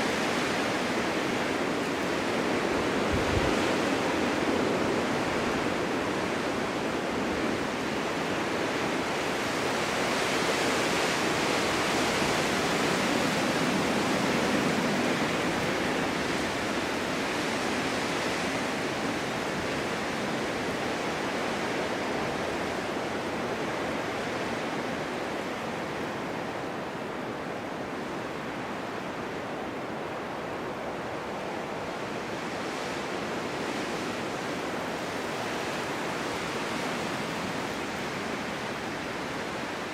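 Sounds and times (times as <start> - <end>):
strong wind blowing in gusts: 0.0 - 39.9.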